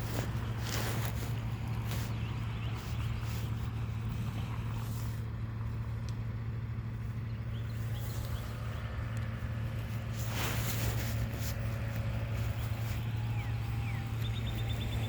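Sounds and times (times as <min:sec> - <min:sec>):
diesel engine humming: 0:00.0 - 0:15.0.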